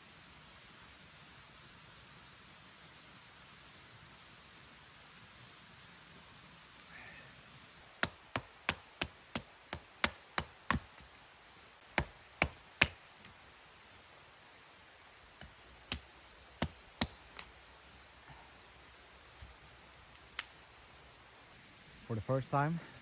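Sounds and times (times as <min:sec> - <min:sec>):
wood being chopped: 0:08.0 - 0:11.0, 0:12.0 - 0:13.0, 0:15.4 - 0:17.5.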